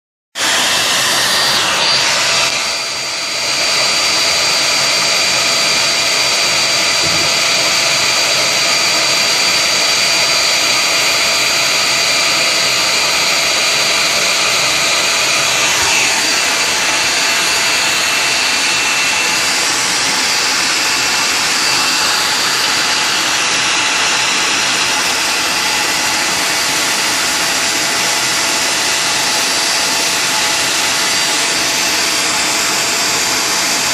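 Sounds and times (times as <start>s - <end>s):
vacuum cleaner running: 0.4s - 33.9s.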